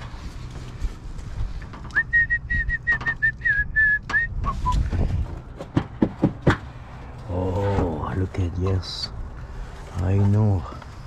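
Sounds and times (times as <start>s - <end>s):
person whistling: 1.9s - 4.9s.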